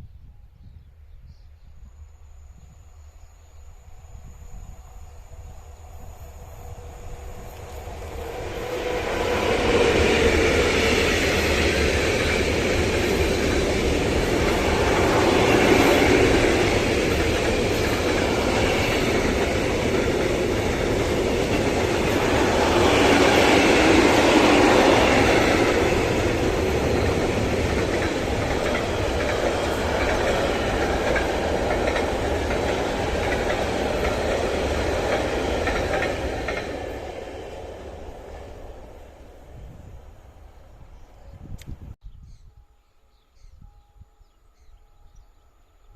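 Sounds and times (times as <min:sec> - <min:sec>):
train wheels clattering over rails: 0:07.4 - 0:38.6.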